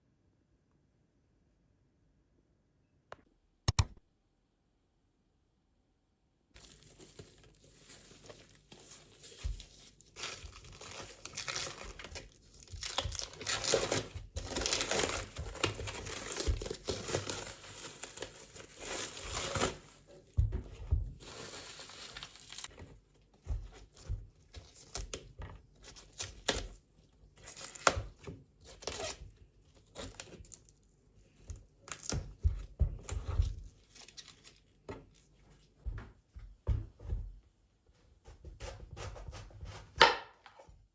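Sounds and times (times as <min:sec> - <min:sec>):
packaging crinkling and tearing: 0:06.6 - 0:20.1, 0:21.2 - 0:22.8, 0:27.4 - 0:29.2, 0:33.1 - 0:35.2.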